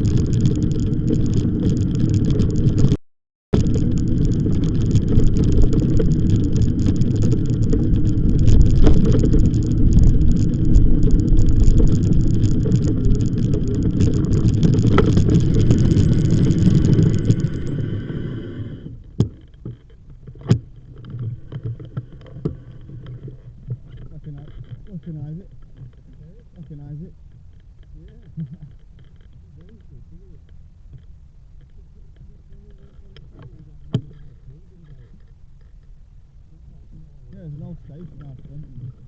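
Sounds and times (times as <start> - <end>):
wind rush on microphone: 0.0 - 19.2
bicycle rolling noise: 0.0 - 36.3, 37.3 - 39.0.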